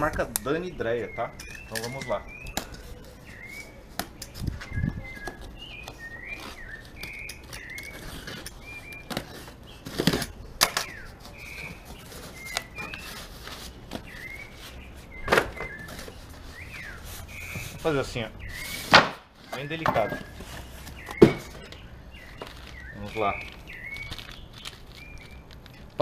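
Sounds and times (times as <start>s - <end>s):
bird chirping: 0.0s - 26.0s.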